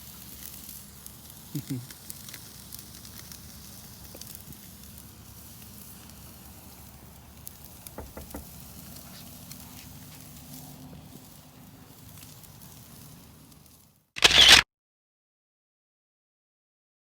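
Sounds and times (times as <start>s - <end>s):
fire crackling: 0.0s - 14.1s
meat sizzling on a grill: 0.0s - 14.1s
short knocks: 8.0s - 8.5s.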